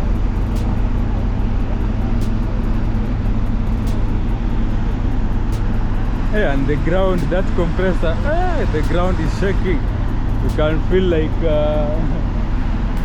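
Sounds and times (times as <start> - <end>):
compressor droning: 0.0 - 13.0.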